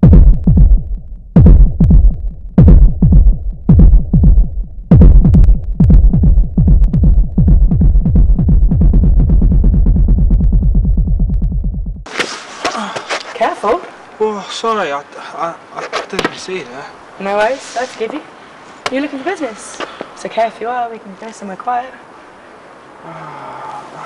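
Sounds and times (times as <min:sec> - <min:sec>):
bass hits falling in pitch: 0:00.0 - 0:12.1.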